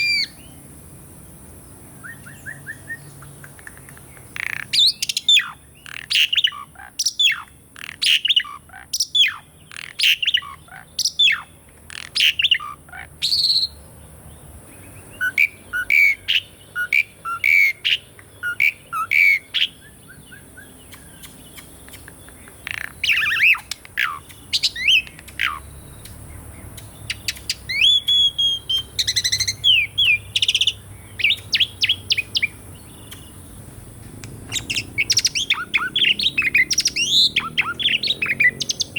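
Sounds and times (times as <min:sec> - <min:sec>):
starling chattering and whistling: 0:00.0 - 0:00.5, 0:15.2 - 0:33.6, 0:34.5 - 0:38.9.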